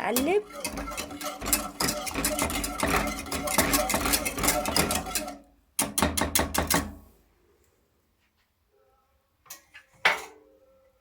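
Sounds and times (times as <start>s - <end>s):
spoon stirring in a pot: 0.0s - 6.9s.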